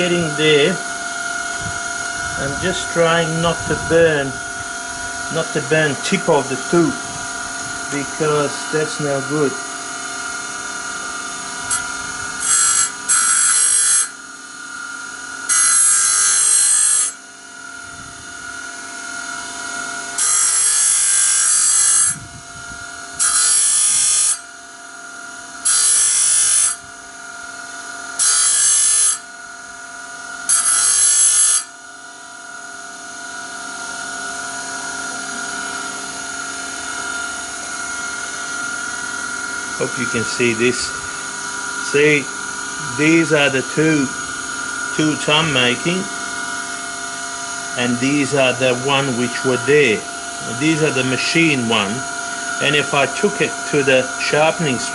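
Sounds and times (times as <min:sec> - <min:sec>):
rotary tool whining: 0:00.0 - 0:54.9
high-pitched metal grinding: 0:01.4 - 0:09.6, 0:11.5 - 0:14.2, 0:15.5 - 0:17.2, 0:20.1 - 0:22.2, 0:23.2 - 0:24.5, 0:25.6 - 0:26.8, 0:28.2 - 0:29.3, 0:30.4 - 0:31.8, 0:34.9 - 0:54.9.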